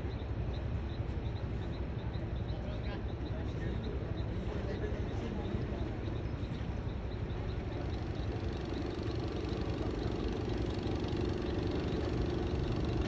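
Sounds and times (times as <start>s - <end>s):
engine idling with low chugging: 0.0s - 13.0s
steady hum: 7.4s - 13.0s.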